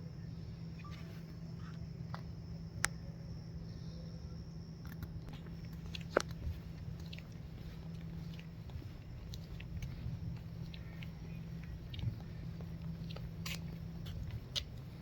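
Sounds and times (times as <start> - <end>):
steady low rumble: 0.0 - 15.0
light crunches: 4.9 - 15.0.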